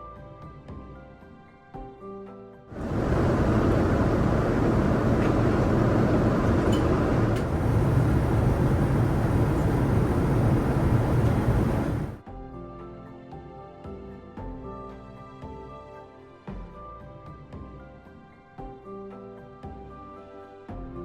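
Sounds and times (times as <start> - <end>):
airliner engine rushing noise: 2.7 - 12.2.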